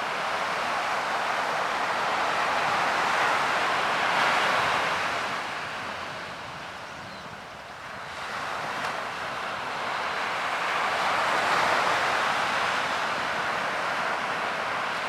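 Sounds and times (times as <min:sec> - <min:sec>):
ocean waves breaking: 0:07.8 - 0:15.0.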